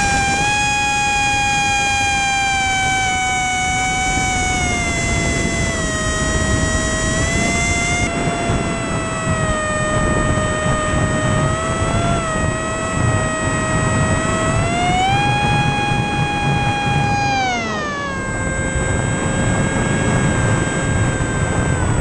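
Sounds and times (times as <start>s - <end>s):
electric motor and propeller whine: 0.0s - 22.0s.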